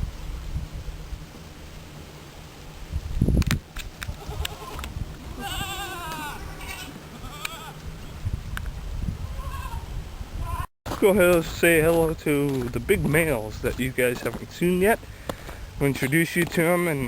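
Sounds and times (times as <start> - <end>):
goat bleating: 4.2 - 7.8, 9.3 - 10.6.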